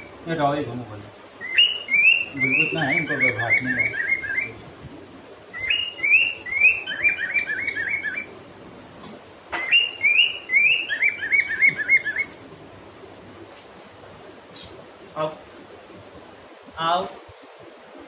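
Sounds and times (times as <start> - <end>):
cockatiel whistling: 1.4 - 4.6, 5.5 - 8.3, 9.6 - 12.4.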